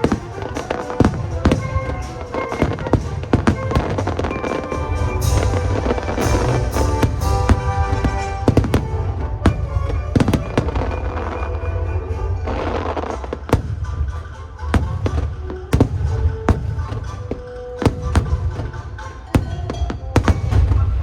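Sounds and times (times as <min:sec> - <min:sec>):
fireworks bangs: 0:00.0 - 0:11.4, 0:12.4 - 0:21.0
fireworks crackling: 0:00.0 - 0:11.6, 0:12.3 - 0:21.0
loud show music: 0:00.0 - 0:21.0.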